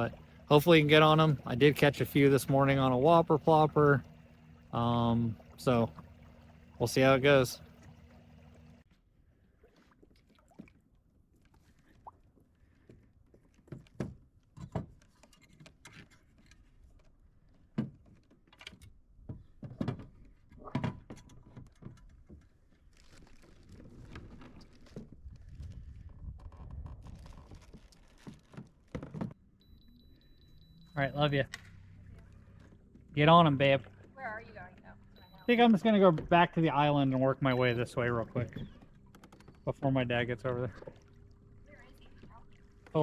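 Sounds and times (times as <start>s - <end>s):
gear and paddle knocking kayak hull: 0.0s - 8.8s, 13.5s - 29.4s, 31.5s - 43.0s
low steady noise: 0.0s - 8.8s.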